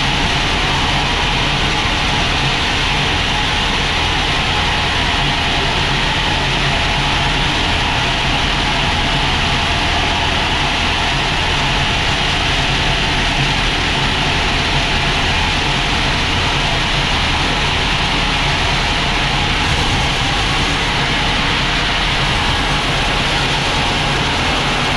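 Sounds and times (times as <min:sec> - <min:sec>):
sawmill machinery drone and hiss: 0:00.0 - 0:24.9.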